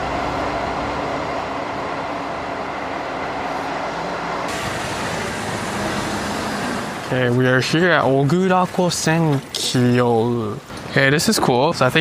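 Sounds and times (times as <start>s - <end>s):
passing vehicles rumble: 0.0s - 9.1s.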